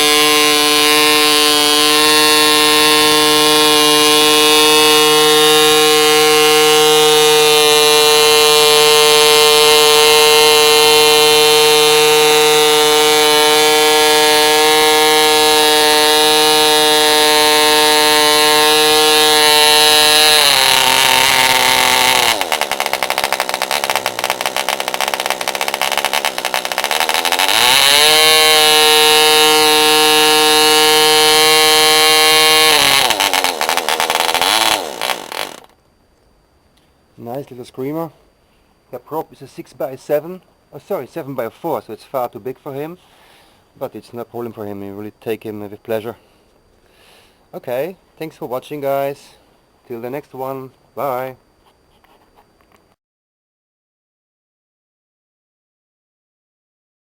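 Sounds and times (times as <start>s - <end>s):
model diesel engine running: 0.0s - 35.7s.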